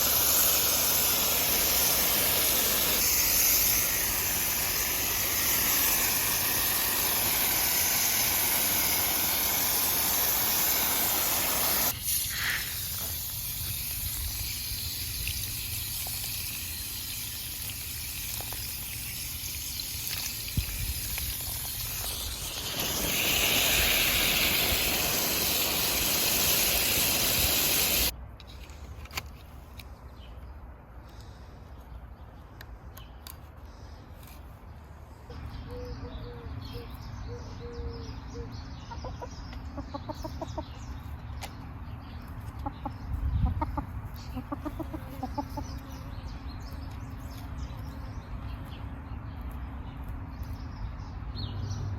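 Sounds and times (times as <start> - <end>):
water spraying from garden hose: 0.0 - 28.2.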